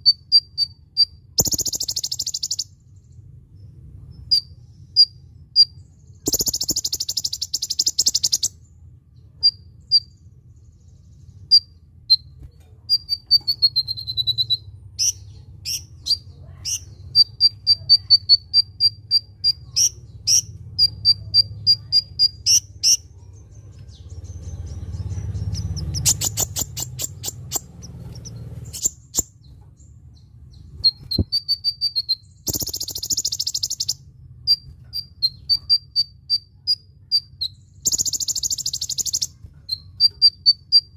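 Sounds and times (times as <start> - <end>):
bird chips and ticks: 0.0 - 2.7, 4.3 - 8.6, 23.7 - 29.8, 30.8 - 40.9
harsh buzzy bird rattles: 1.4 - 2.6, 6.3 - 8.5, 25.5 - 29.3, 32.4 - 34.0.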